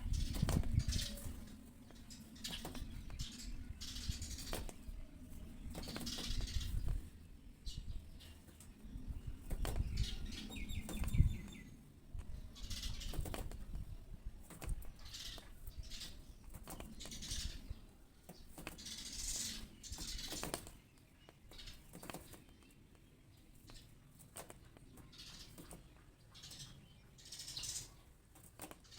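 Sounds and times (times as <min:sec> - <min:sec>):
bird wings fluttering: 0:00.0 - 0:07.2, 0:08.4 - 0:11.5, 0:12.7 - 0:13.8, 0:14.4 - 0:17.6, 0:18.2 - 0:20.8, 0:21.5 - 0:22.6, 0:23.6 - 0:25.9
bird chirps: 0:00.0 - 0:11.8, 0:24.6 - 0:28.1.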